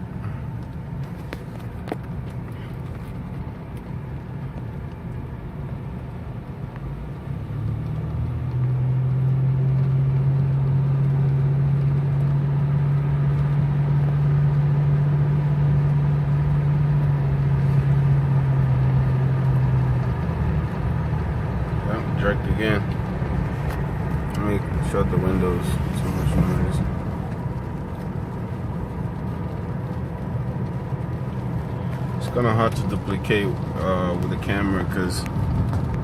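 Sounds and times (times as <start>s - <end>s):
car engine drone: 0.0s - 36.0s
road noise: 0.0s - 36.0s.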